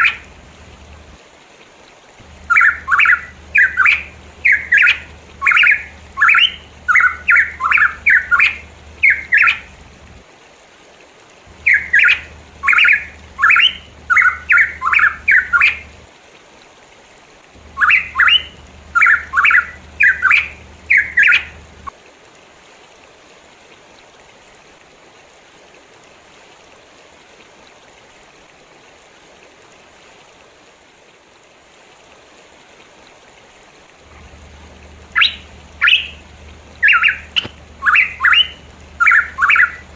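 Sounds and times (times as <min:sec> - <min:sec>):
faint steady hiss: 0:00.0 - 0:39.9
bird whistled calls: 0:02.4 - 0:09.7, 0:11.6 - 0:15.9, 0:17.7 - 0:21.6, 0:35.0 - 0:36.2, 0:36.8 - 0:39.9.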